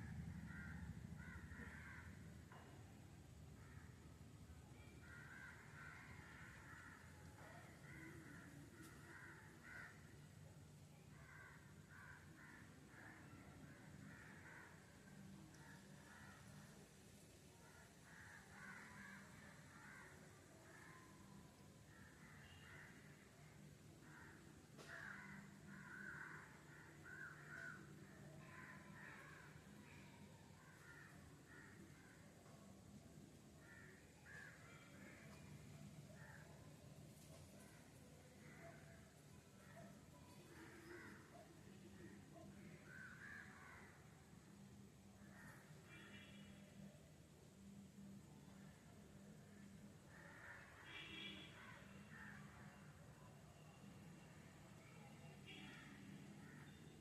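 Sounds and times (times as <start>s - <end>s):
faint bird calls: 17.6s - 47.0s, 49.5s - 57.0s.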